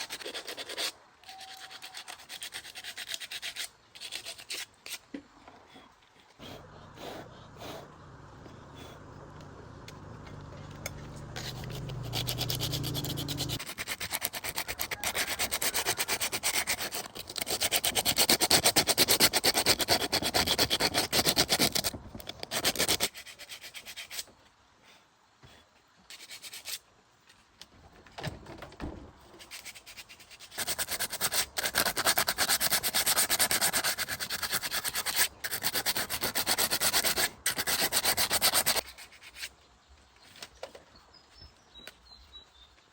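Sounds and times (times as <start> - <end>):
low hum: 6.4 - 13.6
abrasive sanding: 11.2 - 21.9, 29.5 - 39.5.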